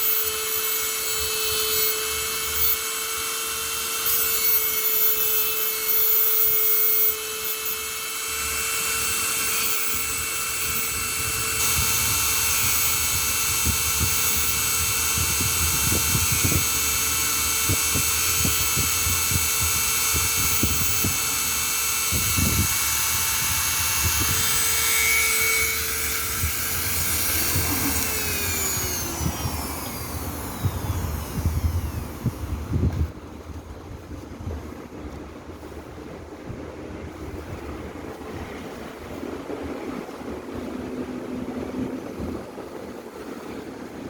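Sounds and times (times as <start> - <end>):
electric motor whining: 0.0 - 33.2.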